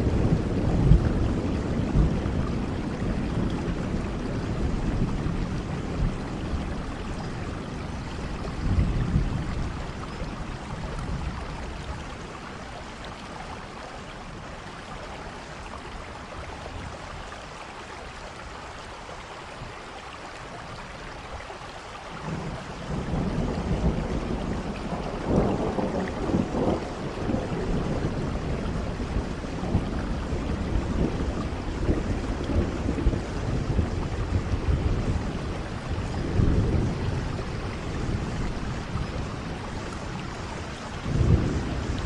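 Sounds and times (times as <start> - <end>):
rolling thunder: 0.0 - 12.4, 22.2 - 42.0
steady rain: 0.0 - 42.0.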